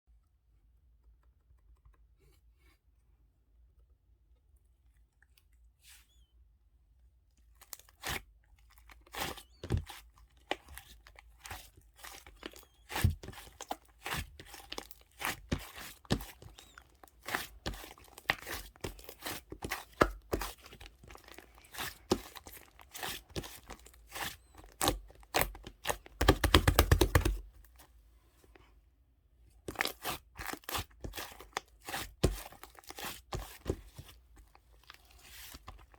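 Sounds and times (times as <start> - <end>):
crinkling and crunching: 7.4 - 28.7, 29.6 - 35.9.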